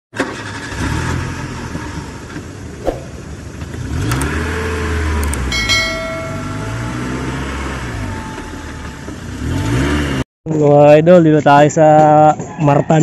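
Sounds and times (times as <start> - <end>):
car engine revving: 0.4 - 5.5, 6.8 - 10.2
brief ringing tone: 5.5 - 7.6.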